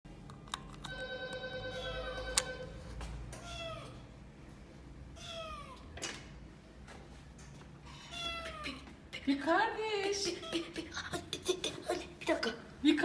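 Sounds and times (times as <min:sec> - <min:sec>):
kitten meowing: 0:03.4 - 0:04.0, 0:05.2 - 0:05.8.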